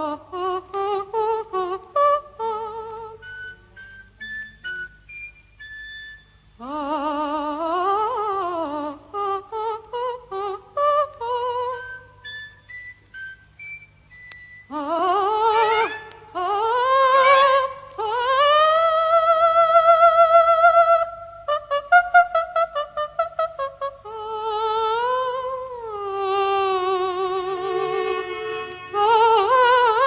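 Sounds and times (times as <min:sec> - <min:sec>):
soprano singing operatic vocalise: 0:00.0 - 0:05.8, 0:06.6 - 0:30.0
orchestra: 0:27.5 - 0:29.9.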